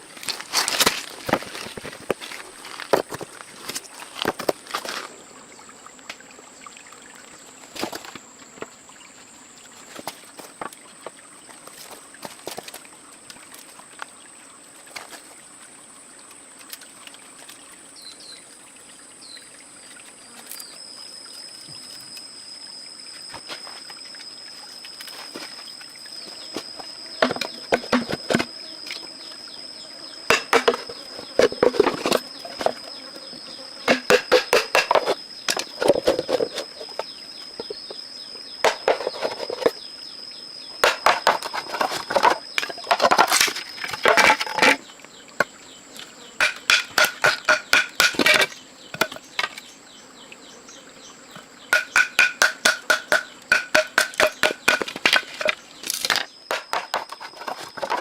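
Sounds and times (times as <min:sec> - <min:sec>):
insects shrilling: 0:19.2 - 0:58.0.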